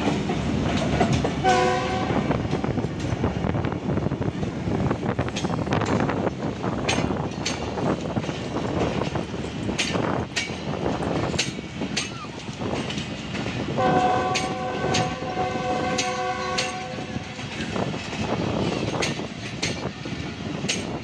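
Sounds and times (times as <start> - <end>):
train wheels clicking over rail joints: 0.0 - 21.0
diesel locomotive horn chord: 1.4 - 2.4, 13.8 - 17.4.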